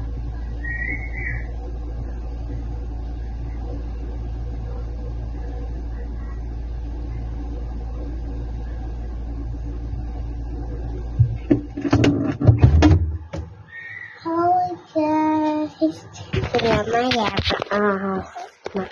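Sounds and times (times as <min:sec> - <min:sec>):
refrigerator humming: 0:00.0 - 0:18.9
sudden knock: 0:11.2 - 0:13.6.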